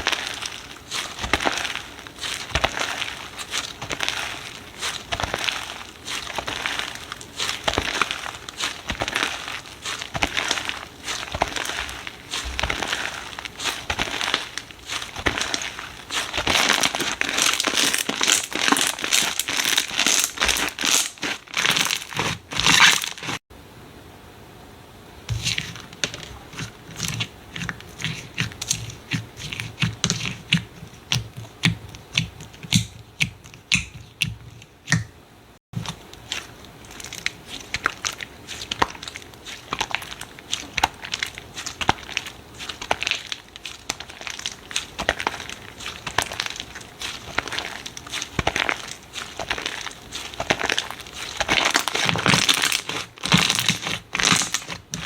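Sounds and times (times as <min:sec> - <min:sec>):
slime crackling: 0:00.0 - 0:23.4, 0:35.8 - 0:55.0.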